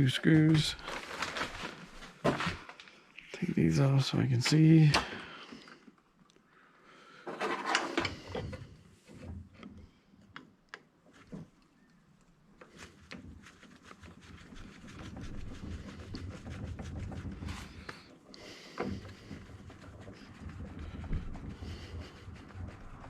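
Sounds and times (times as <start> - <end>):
scraping with rapid clicks: 7.3 - 23.0.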